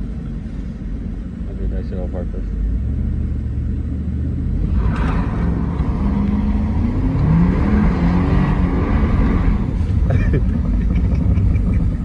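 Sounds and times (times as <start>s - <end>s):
car engine revving under load: 0.0s - 12.0s
tyres churning through snow: 4.5s - 12.0s.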